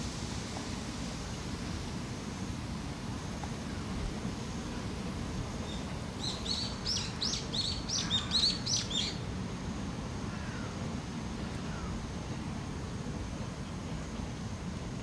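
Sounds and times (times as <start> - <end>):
songbird chirping: 5.7 - 9.2.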